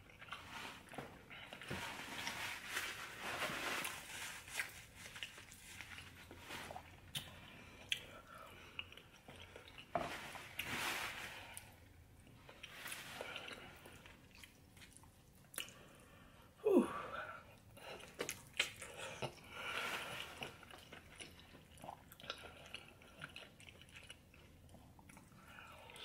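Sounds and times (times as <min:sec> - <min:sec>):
wet chewing and biting: 0:18.0 - 0:19.5.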